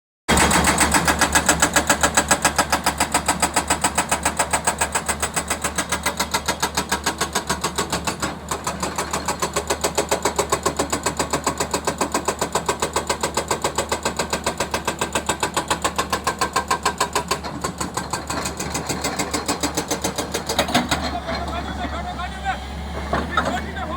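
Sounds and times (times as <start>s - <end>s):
diesel engine pulsing: 17.4s - 23.9s.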